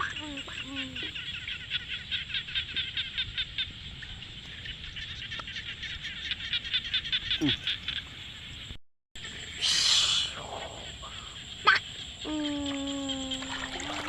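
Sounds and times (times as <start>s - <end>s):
frogs calling in pulses: 0.0s - 8.6s, 9.2s - 14.0s
sliding frog call: 9.2s - 14.0s.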